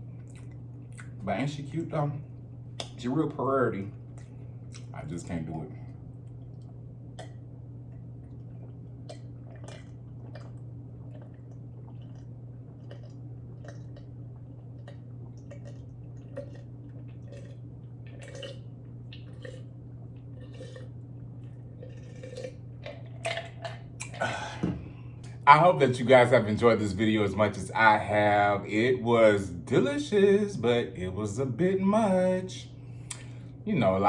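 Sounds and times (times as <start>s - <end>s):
steady low hum: 0.0s - 34.0s
wet chewing clicks and smacks: 0.1s - 1.2s, 2.7s - 3.3s, 4.0s - 5.0s, 6.2s - 24.2s, 33.0s - 33.4s.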